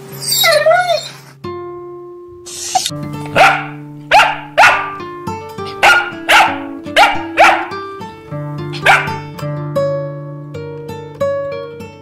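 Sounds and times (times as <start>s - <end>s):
background music with held notes: 0.0s - 12.0s
dog barking sharply: 3.3s - 5.0s, 5.7s - 7.8s, 8.8s - 9.2s.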